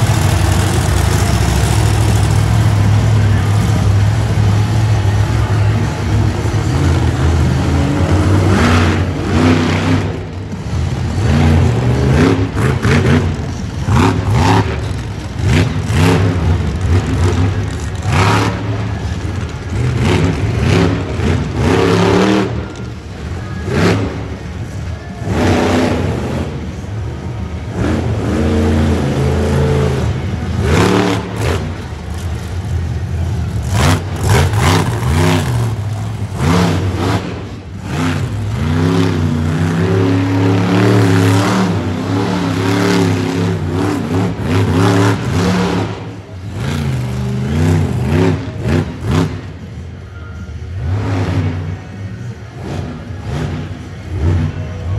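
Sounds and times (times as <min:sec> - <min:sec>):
monster truck engine revving: 0:00.0 - 0:49.9, 0:50.5 - 0:54.9.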